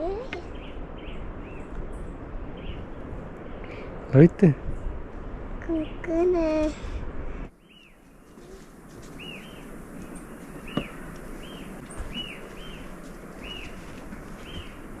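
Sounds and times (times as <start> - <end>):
bird whistling: 7.7 - 12.8.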